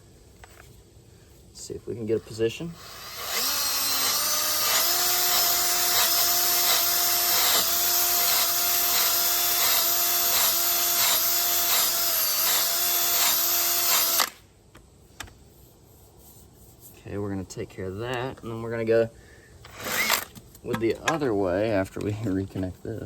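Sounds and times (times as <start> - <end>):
power drill sanding metal rim: 2.0 - 14.3.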